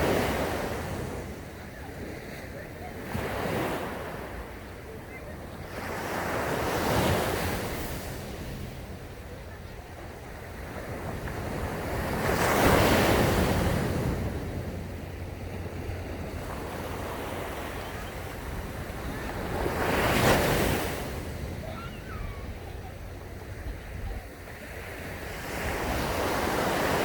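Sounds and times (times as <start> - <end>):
ocean waves breaking: 0.0 - 27.0
wind buffeting microphone: 7.0 - 27.0.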